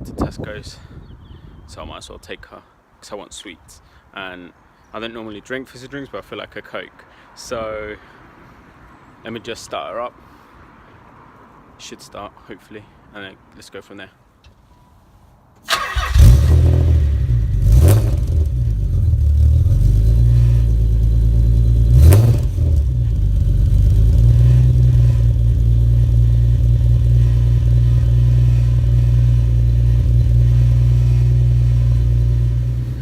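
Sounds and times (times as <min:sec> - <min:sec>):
car engine idling: 0:15.7 - 0:33.0
car engine revving: 0:15.7 - 0:33.0.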